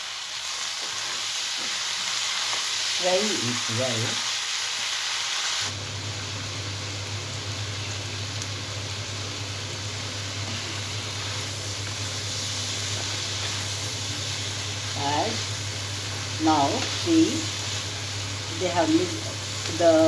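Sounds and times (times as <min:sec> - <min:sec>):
beans sizzling in oil: 0:00.0 - 0:20.0
steady low hum: 0:05.7 - 0:20.0.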